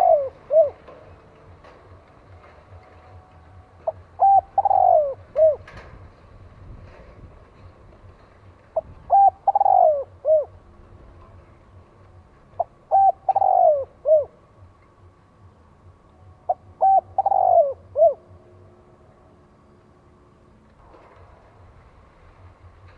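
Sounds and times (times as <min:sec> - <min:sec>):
dove cooing: 0:00.0 - 0:01.1, 0:03.8 - 0:05.8, 0:08.8 - 0:10.6, 0:12.6 - 0:14.4, 0:16.5 - 0:18.4.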